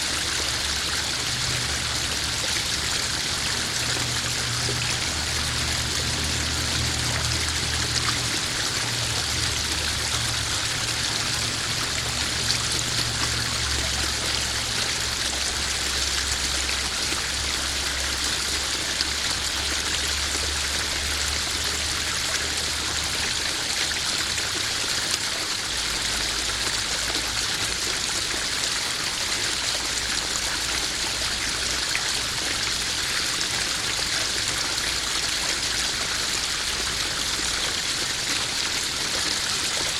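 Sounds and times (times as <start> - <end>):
waterfall splashing into pond: 0.0 - 39.9.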